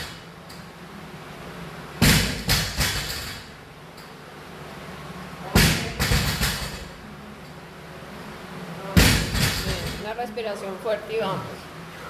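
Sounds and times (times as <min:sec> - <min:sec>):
barbell dropping with heavy thud: 0:09.0 - 0:10.0.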